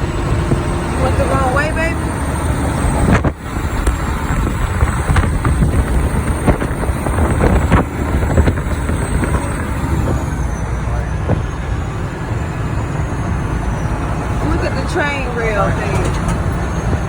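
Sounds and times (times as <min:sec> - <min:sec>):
truck engine and road noise: 0:00.0 - 0:17.0
knocks and rattles: 0:02.7 - 0:10.4.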